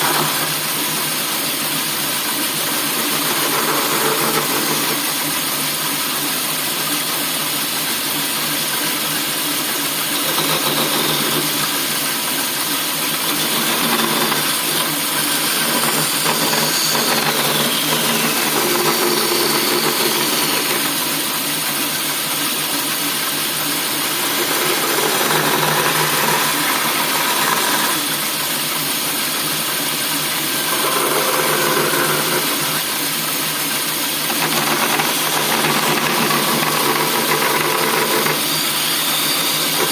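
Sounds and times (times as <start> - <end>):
bandsaw running: 0.0 - 39.9.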